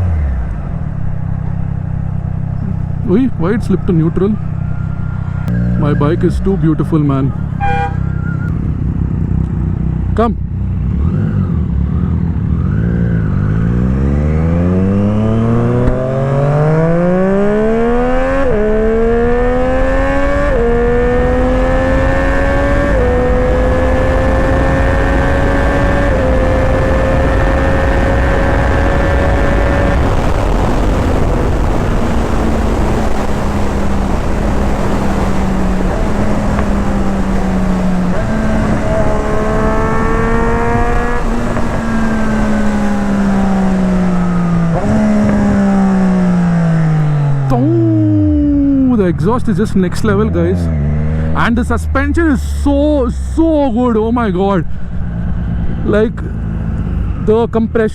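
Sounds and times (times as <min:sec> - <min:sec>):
motorcycle engine accelerating: 0:00.0 - 0:57.9
quick gear upshifts: 0:00.0 - 0:57.9
wind rush: 0:13.5 - 0:52.4.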